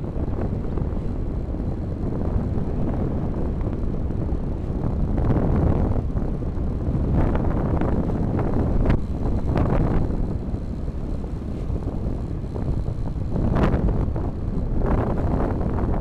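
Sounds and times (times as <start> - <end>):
motorcycle engine: 0.0 - 16.0
road noise: 0.0 - 16.0
wind rumble on microphone: 0.0 - 16.0.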